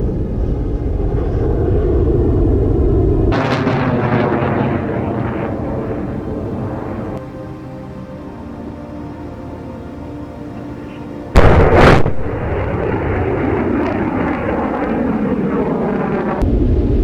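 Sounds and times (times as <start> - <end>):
rocket roar: 0.0 - 7.2, 11.4 - 17.0
music: 0.0 - 17.0.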